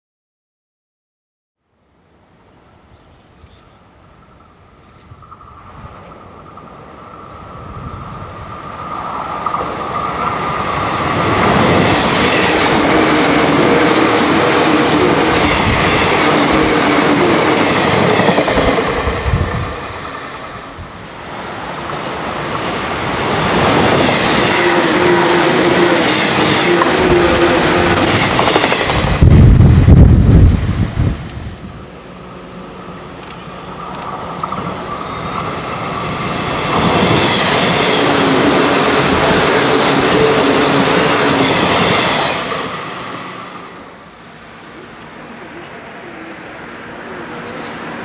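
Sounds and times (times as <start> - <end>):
electric train passing: 3.8 - 48.0
steady high tone: 24.3 - 44.2.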